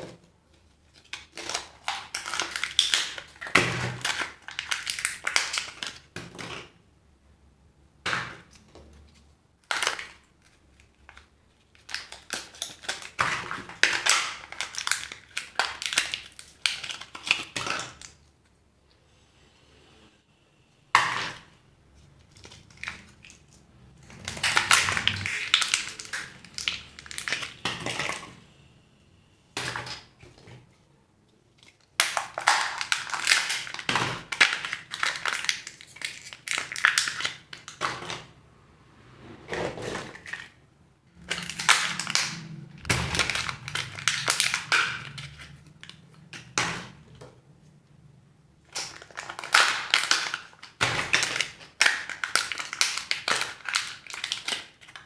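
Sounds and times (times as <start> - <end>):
wrappers crinkling and tearing: 9.6 - 18.2, 22.1 - 27.6, 31.6 - 37.8, 41.2 - 46.3, 48.6 - 55.0.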